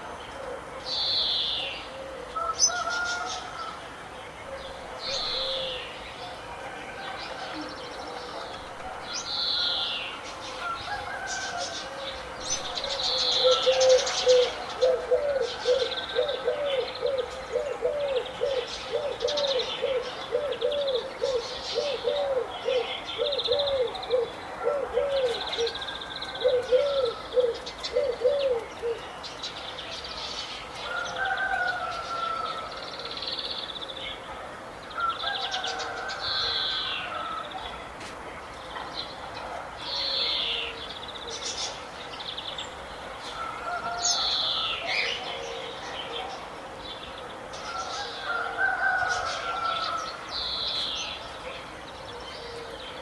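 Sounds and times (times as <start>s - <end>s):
birds chirping: 0.0s - 34.3s.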